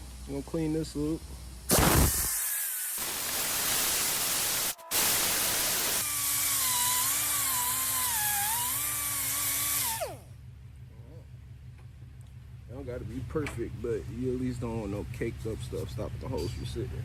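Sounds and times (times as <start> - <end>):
rotary power tool scrubbing: 1.7 - 10.2.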